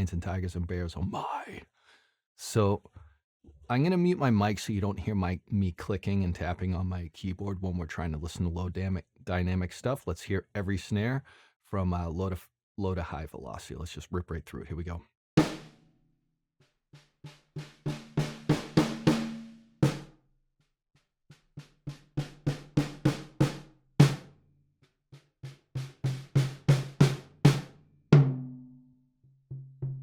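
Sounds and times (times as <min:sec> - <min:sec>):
snare drum hits: 0:15.4 - 0:15.8, 0:17.6 - 0:20.1, 0:21.6 - 0:24.3, 0:25.4 - 0:28.5.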